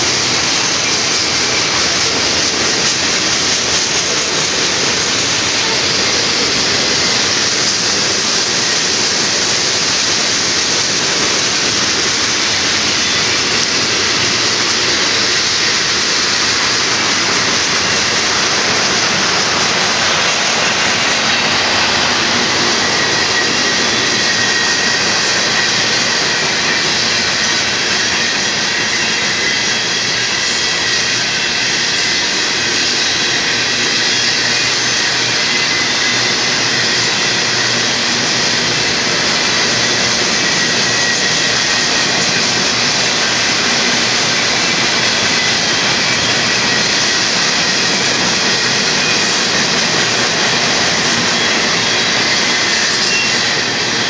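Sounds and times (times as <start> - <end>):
freight train wheels on rail: 0.0 - 54.0
faint high ringing tones: 39.0 - 54.0.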